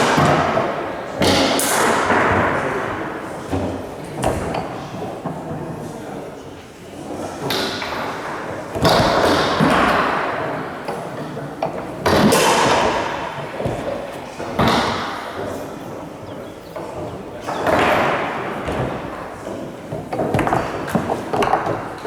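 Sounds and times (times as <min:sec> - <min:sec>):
foosball ball and rods knocking: 0:19.9 - 0:22.0.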